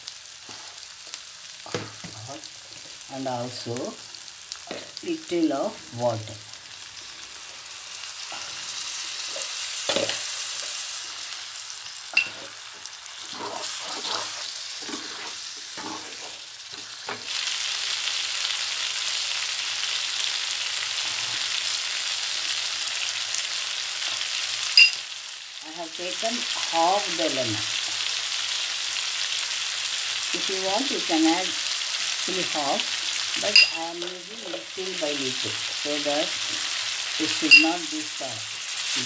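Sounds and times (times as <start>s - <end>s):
meat sizzling in a frying pan: 0.0s - 39.0s
spatula scraping a pan: 12.2s - 17.0s.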